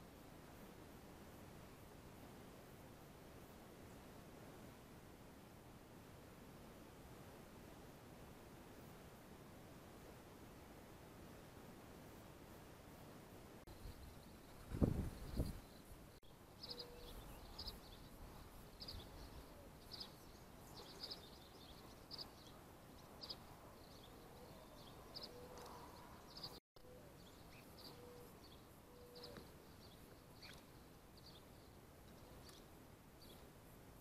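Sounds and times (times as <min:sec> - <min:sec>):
faint bird chirps: 0:13.7 - 0:33.5.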